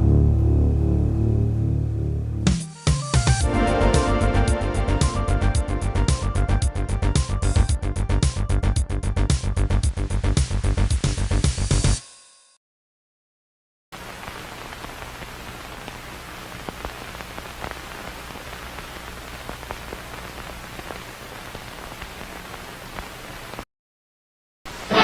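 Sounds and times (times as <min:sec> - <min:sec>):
crackling clicks: 0:14.0 - 0:23.6
static hiss: 0:14.0 - 0:23.6, 0:24.7 - 0:25.0.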